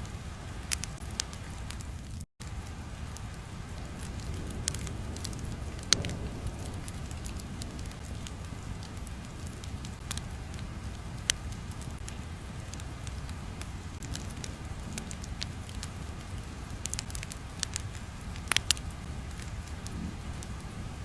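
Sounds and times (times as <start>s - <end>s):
sharp pops and crackles: 0.0s - 21.0s
low rumble: 1.6s - 21.0s.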